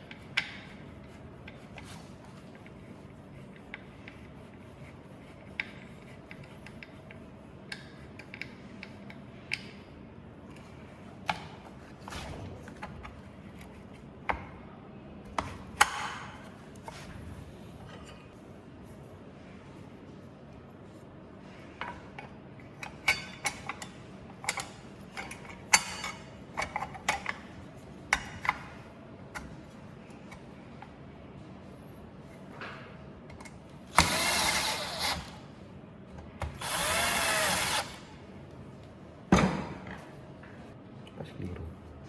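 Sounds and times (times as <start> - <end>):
power screwdriver driving screws: 33.9 - 35.4, 36.6 - 38.1.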